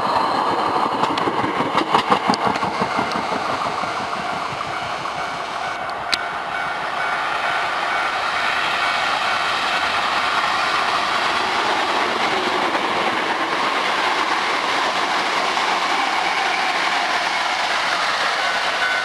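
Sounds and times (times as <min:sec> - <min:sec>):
steel wheels running on rails: 0:00.0 - 0:19.0.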